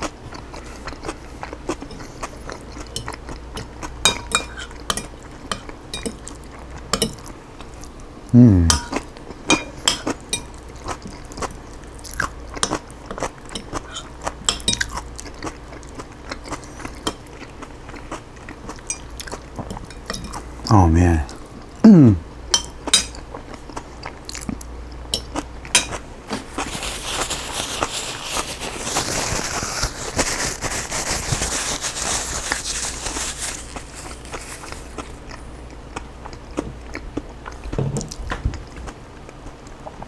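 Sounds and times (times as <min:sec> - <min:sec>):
brief vocal sound: 0:08.3 - 0:08.9, 0:20.7 - 0:22.2.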